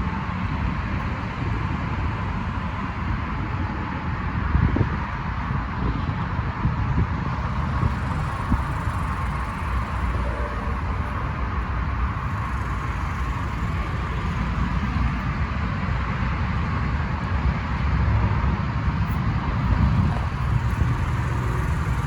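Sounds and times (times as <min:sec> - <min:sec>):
diesel truck engine running: 0:07.2 - 0:16.8, 0:19.4 - 0:22.0.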